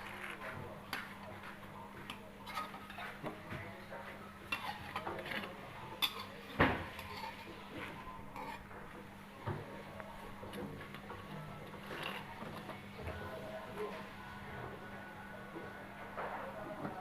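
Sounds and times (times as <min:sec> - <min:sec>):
cookware and utensils clinking: 0:02.0 - 0:09.0, 0:10.5 - 0:12.8.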